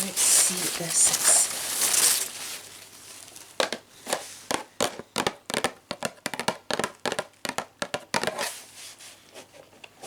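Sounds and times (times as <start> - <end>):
packaging crackling: 0.0 - 3.9.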